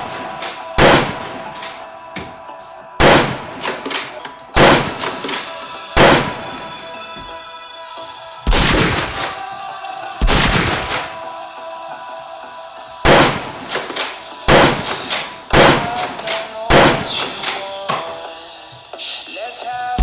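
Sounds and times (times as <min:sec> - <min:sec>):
gunshot-like bangs: 0:00.0 - 0:01.8, 0:03.0 - 0:06.5, 0:08.5 - 0:09.4, 0:10.2 - 0:11.2, 0:13.0 - 0:17.6
background music: 0:00.0 - 0:20.0.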